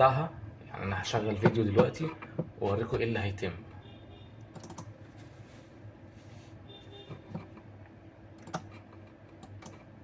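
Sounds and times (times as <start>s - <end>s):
low steady hum: 0.0s - 10.0s
computer clicks: 4.4s - 4.9s, 8.4s - 9.9s.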